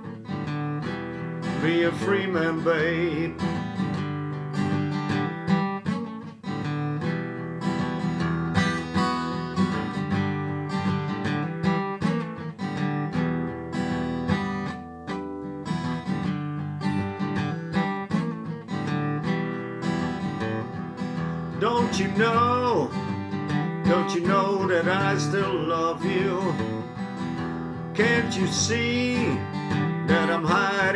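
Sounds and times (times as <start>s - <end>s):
blues guitar with band: 0.0s - 30.9s.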